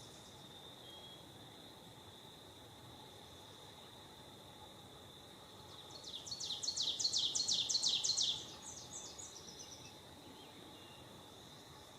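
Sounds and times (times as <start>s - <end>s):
songbird singing: 0.0s - 2.2s, 3.0s - 11.9s.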